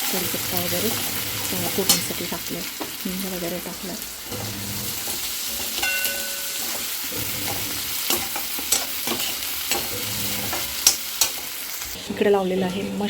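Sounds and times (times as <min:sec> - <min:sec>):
vegetables sizzling in hot oil: 0:00.0 - 0:12.1
spatula clicking against pan: 0:07.5 - 0:11.5.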